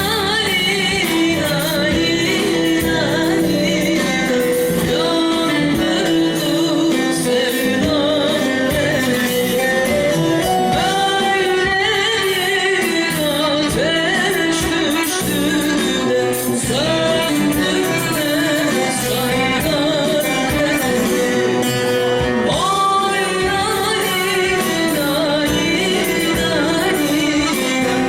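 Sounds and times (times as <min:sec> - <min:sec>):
woman singing a folk song: 0:00.0 - 0:21.6, 0:22.4 - 0:28.0
instrumental band accompaniment: 0:00.0 - 0:28.0.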